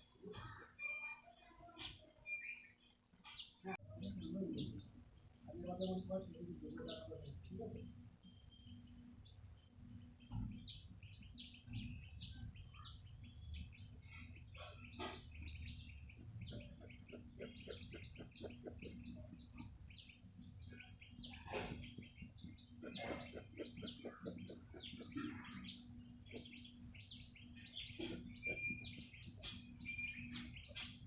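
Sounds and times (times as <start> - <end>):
small birds chirping: 0.0 - 31.0
steady low hum: 7.4 - 31.0.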